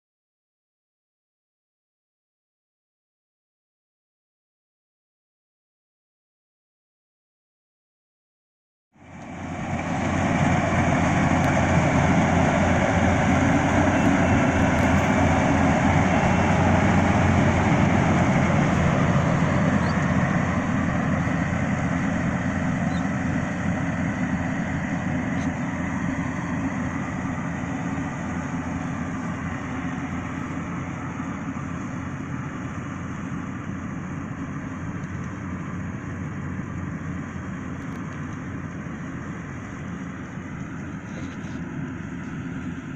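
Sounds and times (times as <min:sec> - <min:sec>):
combine harvester running: 0:09.0 - 0:42.9.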